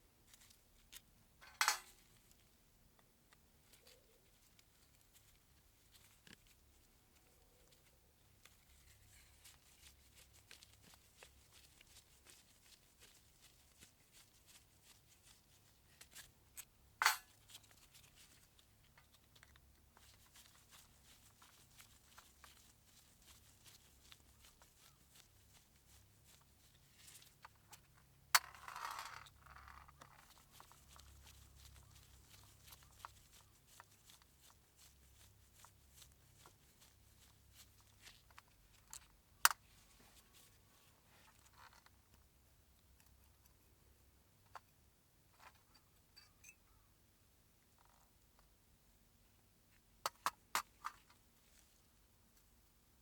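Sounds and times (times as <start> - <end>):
small clicks of tools handled: 0.3 - 2.4, 16.0 - 17.4.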